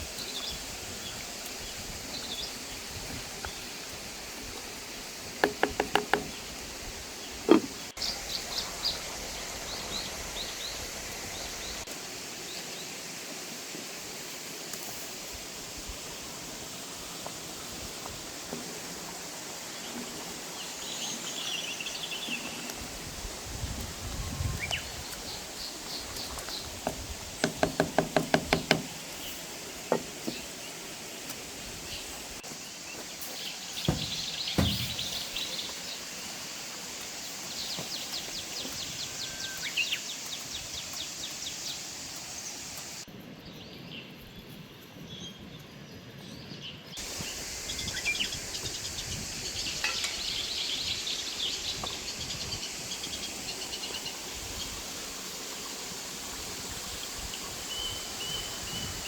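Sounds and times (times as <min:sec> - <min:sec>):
ringing knocks: 0:05.4 - 0:06.4
small birds chirping: 0:24.4 - 0:43.0
dull thuds: 0:33.8 - 0:35.4.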